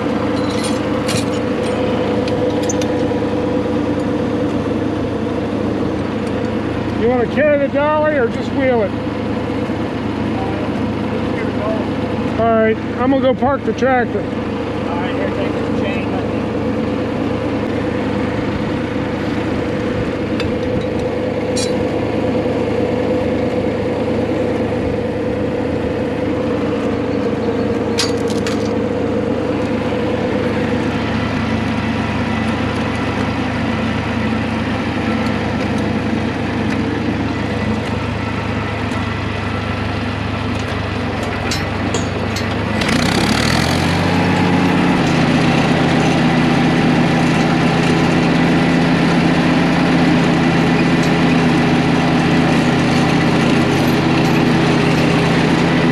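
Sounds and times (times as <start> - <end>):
tractor engine running: 0.0 - 7.8, 16.3 - 49.2.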